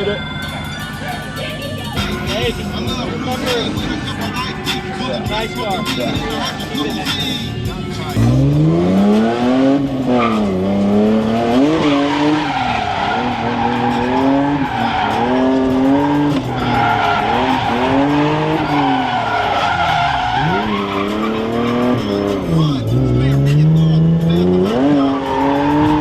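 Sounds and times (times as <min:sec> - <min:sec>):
car engine revving: 0:00.0 - 0:26.0
tyres squealing: 0:02.0 - 0:26.0.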